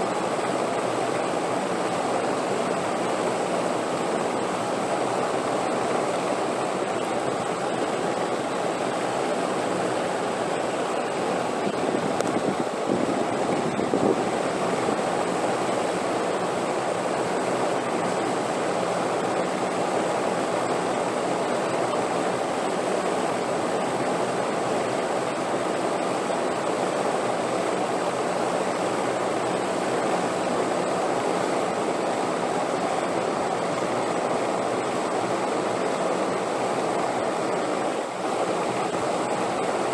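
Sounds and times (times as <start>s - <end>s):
rushing wind: 0.0s - 21.5s.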